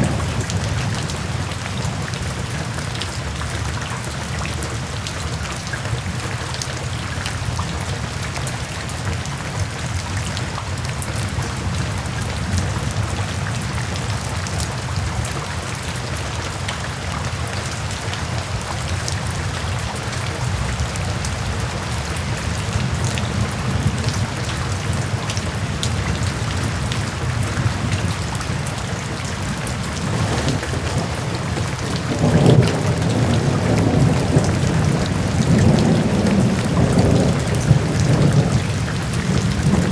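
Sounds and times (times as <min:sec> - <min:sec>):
thunder rumbling: 0:00.0 - 0:03.4, 0:22.9 - 0:39.9
heavy rain: 0:00.0 - 0:39.9.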